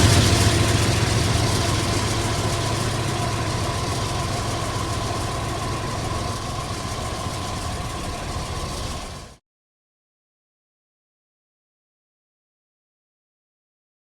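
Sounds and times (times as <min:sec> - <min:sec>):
diesel train rumbling: 0:00.0 - 0:09.4.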